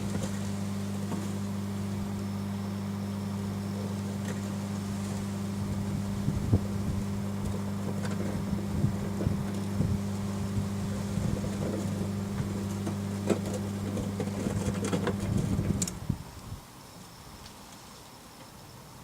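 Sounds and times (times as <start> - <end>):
microwave oven humming: 0.0 - 16.4.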